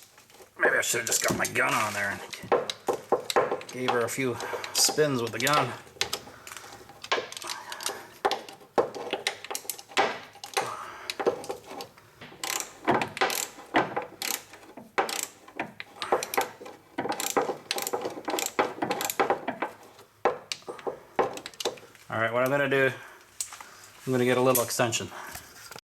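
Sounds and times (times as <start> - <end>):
hand ratchet clicking: 2.2 - 22.1.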